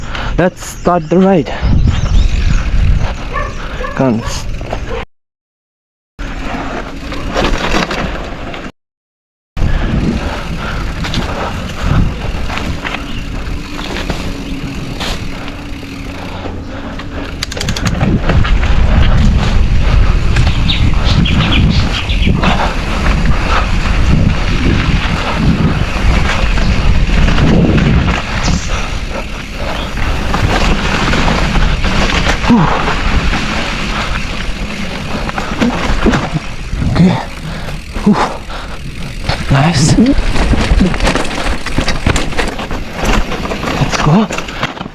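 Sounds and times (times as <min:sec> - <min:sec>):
bike tyres on rough trail: 0:00.0 - 0:05.0, 0:06.2 - 0:08.7, 0:09.6 - 0:44.9
wind on microphone: 0:01.5 - 0:03.8, 0:09.6 - 0:15.4, 0:17.5 - 0:42.2
bike rattling and knocking: 0:06.2 - 0:08.7, 0:09.6 - 0:44.9.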